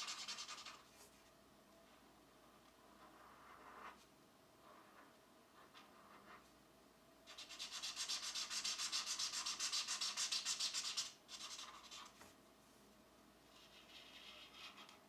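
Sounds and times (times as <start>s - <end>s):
pencil shading on paper: 0.0s - 0.8s, 7.3s - 12.2s, 13.5s - 15.0s.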